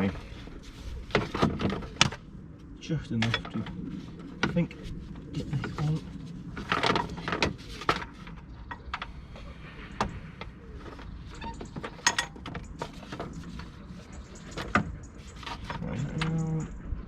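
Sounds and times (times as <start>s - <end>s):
hand tools clinking and knocking: 3.2s - 3.8s, 10.9s - 16.7s.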